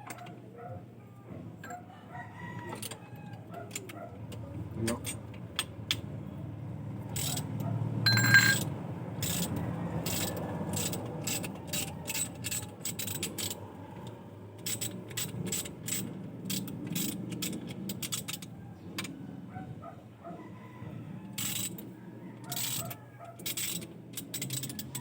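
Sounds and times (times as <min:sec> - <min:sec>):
low steady hum: 0:08.0 - 0:08.7
ringing metal clank: 0:08.1 - 0:09.4
metal hand tools clinking: 0:08.1 - 0:13.6.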